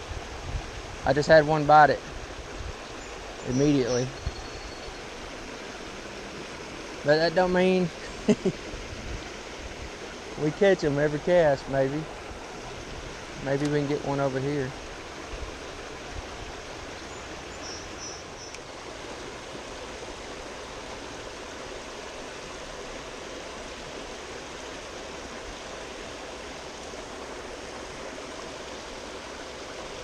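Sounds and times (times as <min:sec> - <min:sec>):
stream flowing: 0:00.0 - 0:30.0
faint high chirps: 0:03.5 - 0:05.1.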